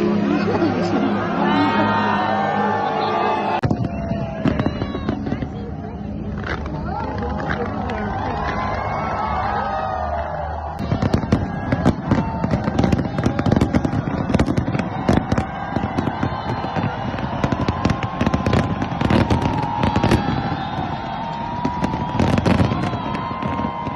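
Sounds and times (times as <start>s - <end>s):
fireworks bangs and pops: 3.6s - 8.6s, 10.8s - 23.9s.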